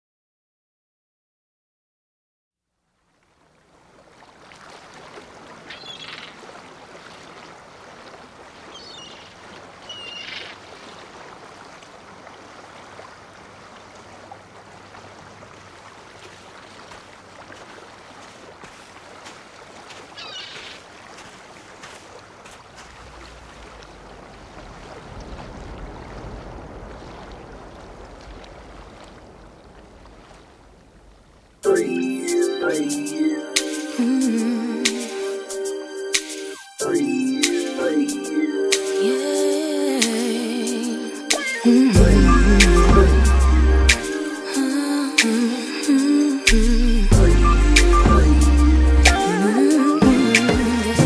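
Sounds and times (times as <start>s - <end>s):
waves washing: 3.2s - 51.0s
short high calls: 8.7s - 10.6s, 20.1s - 20.8s
low rumble: 42.0s - 44.0s.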